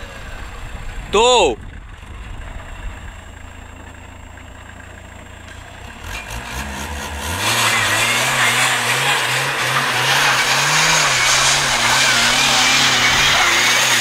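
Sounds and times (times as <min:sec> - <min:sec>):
car engine revving: 0:01.8 - 0:14.0
wheels spinning on snow hiss: 0:05.5 - 0:14.0.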